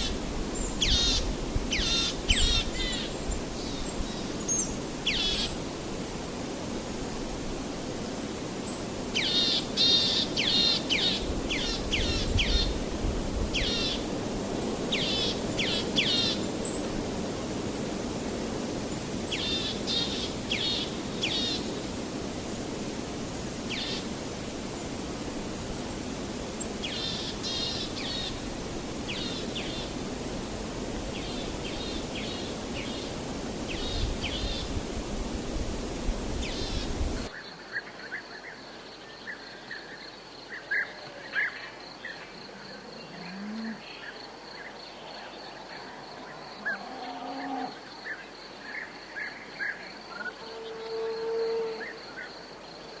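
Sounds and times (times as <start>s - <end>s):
steady hiss: 0.0s - 37.7s.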